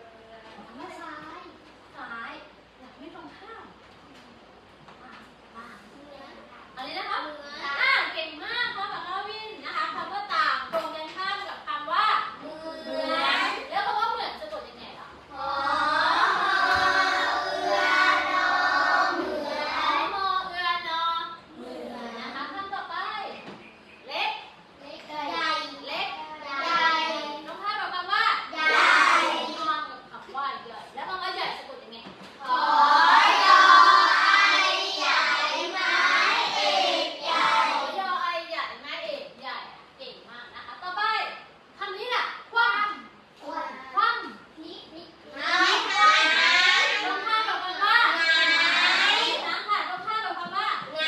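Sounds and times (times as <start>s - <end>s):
children singing in unison: 15.3s - 20.1s, 32.5s - 37.9s.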